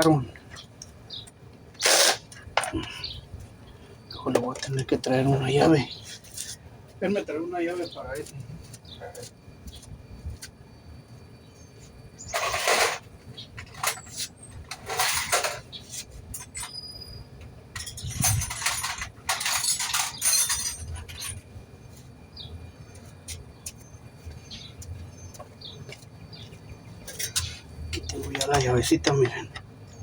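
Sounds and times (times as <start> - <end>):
tools scraping and rattling: 1.8 - 3.1, 12.2 - 17.1, 17.7 - 22.2, 26.9 - 29.8.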